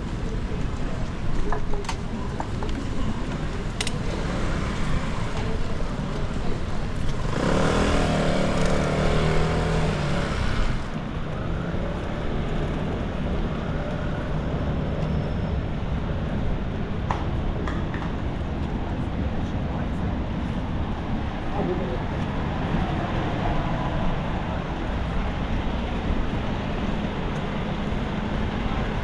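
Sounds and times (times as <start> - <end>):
hiss of street noise: 0.0 - 29.0
vehicle engine passing close: 3.6 - 11.8.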